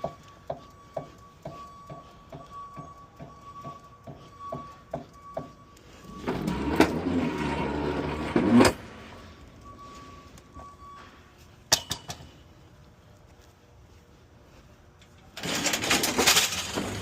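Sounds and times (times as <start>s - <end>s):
quiet ticks: 0.0s - 6.1s.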